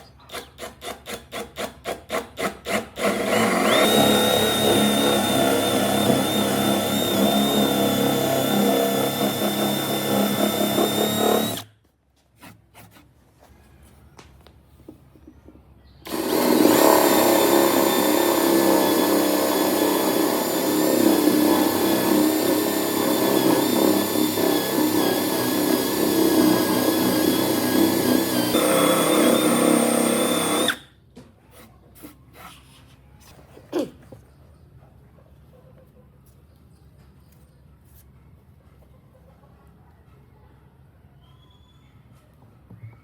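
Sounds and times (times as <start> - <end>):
power tool motor whine: 3.0 - 11.7, 16.0 - 30.9.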